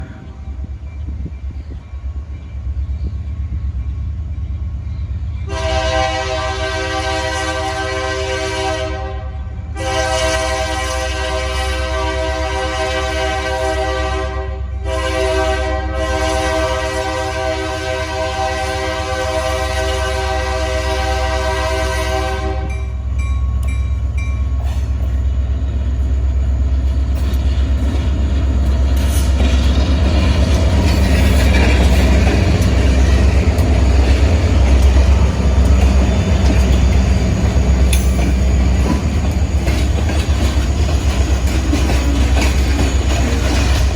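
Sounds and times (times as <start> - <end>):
locomotive air horn blasts: 5.5 - 23.0
diesel engines rumbling: 22.2 - 43.9.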